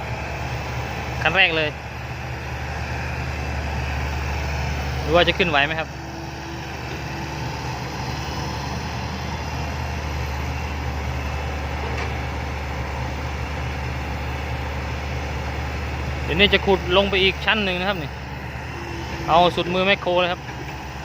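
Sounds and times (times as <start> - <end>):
heavy diesel engine humming: 0.0 - 21.0.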